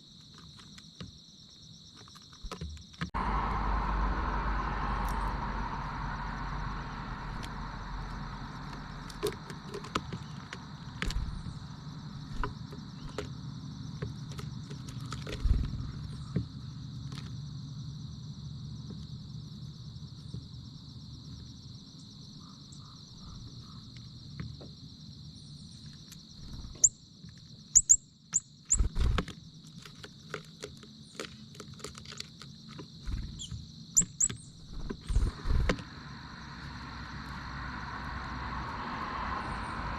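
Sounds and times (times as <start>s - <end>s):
high-pitched insect drone: 3.2s - 14.0s, 33.1s - 39.9s
high bird chirps: 27.8s - 28.9s, 33.3s - 35.4s.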